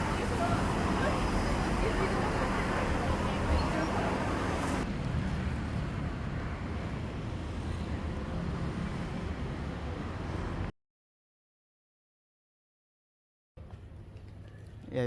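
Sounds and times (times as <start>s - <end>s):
street ambience: 0.0s - 10.7s.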